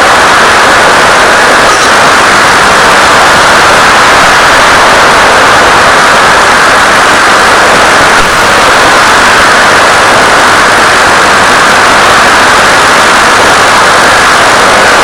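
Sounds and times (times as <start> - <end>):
static hiss: 0.0 - 15.0.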